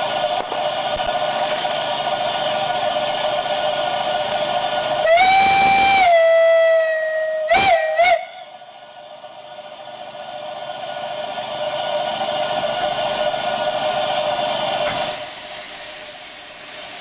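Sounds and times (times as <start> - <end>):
steam locomotive whistle: 5.0 - 8.6.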